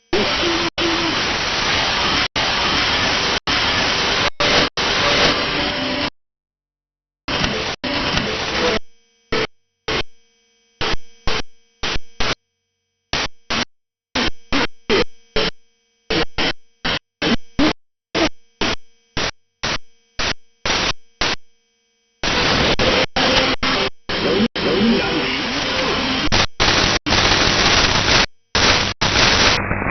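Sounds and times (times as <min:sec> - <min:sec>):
faint low radio tones: 0:00.0 - 0:06.1, 0:22.2 - 0:29.9
radio static bursts: 0:00.0 - 0:06.1, 0:07.3 - 0:10.1, 0:13.1 - 0:21.5, 0:22.2 - 0:29.9.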